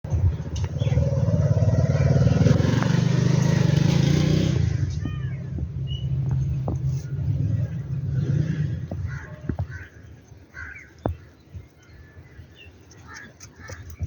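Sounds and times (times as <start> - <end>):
vehicle engine running: 0.1 - 9.3
bird harsh call: 9.0 - 12.3.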